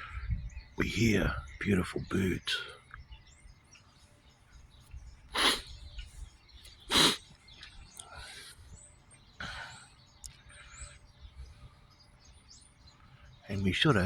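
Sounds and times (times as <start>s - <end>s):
faint high bird chirps: 0.0s - 14.0s
loud short bird calls: 4.6s - 14.0s.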